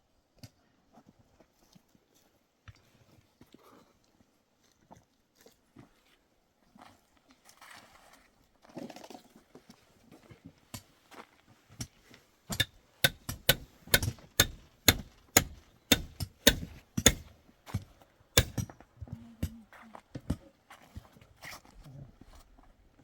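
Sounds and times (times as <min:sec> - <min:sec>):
sharp rhythmic knocks: 0:12.5 - 0:17.2.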